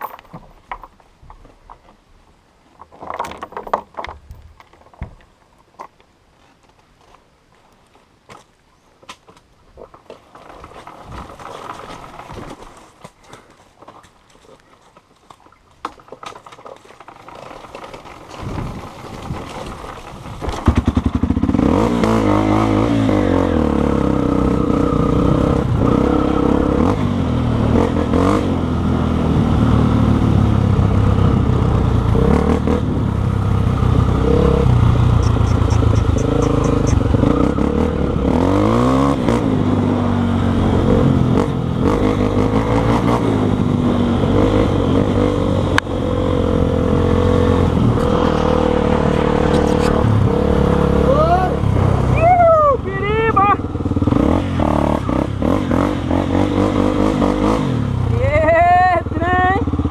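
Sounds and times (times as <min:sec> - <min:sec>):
motorcycle engine revving: 0:20.2 - 0:59.9.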